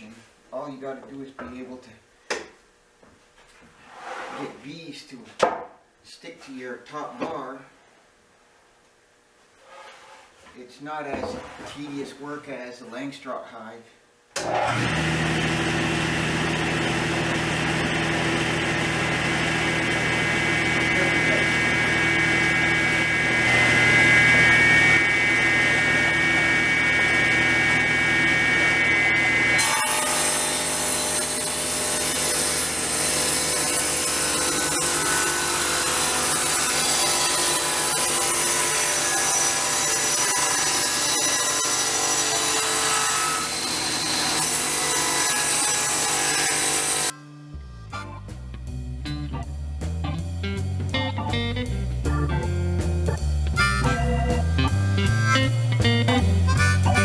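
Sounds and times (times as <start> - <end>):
electric saw cutting wood: 14.4 - 48.0, 53.6 - 57.0.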